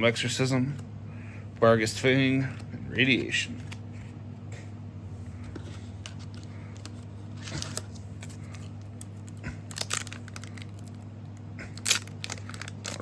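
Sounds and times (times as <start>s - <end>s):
cards and wrapper rustling: 5.5s - 11.1s, 11.8s - 13.0s.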